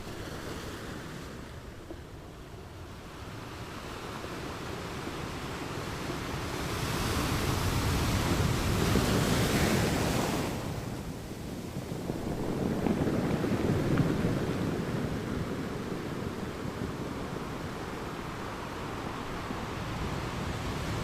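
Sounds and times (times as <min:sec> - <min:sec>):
ocean surf: 0:00.0 - 0:21.0.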